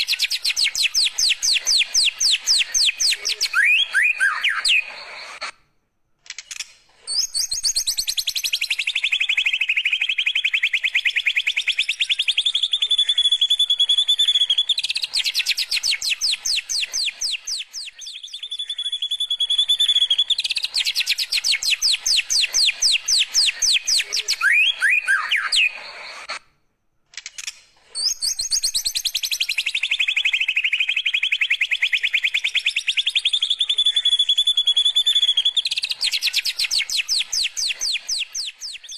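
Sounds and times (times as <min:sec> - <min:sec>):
songbird trilling: 0:00.0 - 0:05.4, 0:07.1 - 0:26.2.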